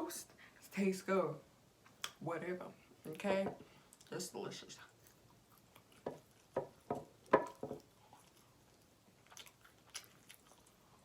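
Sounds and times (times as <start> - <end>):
wet mouth smacks while chewing: 7.5 - 11.0.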